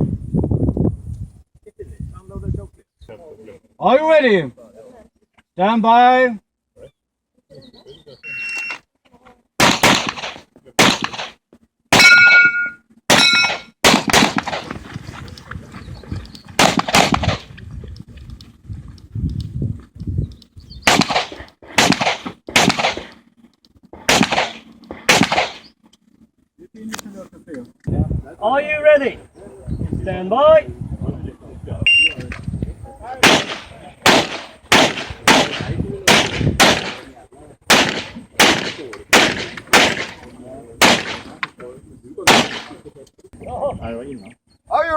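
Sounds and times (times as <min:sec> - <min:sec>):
handgun shots: 0:09.6 - 0:11.4, 0:12.0 - 0:14.7, 0:16.6 - 0:17.4, 0:20.9 - 0:23.2, 0:24.1 - 0:25.7, 0:33.2 - 0:37.1, 0:37.7 - 0:40.2, 0:40.8 - 0:41.4, 0:42.3 - 0:42.8
steel target ringing: 0:12.0 - 0:13.8.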